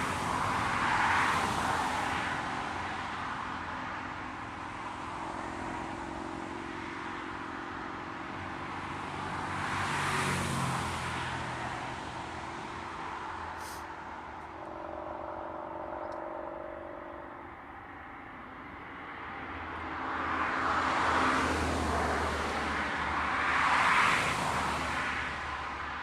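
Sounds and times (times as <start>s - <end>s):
faint steady whine: 12.4s - 20.9s.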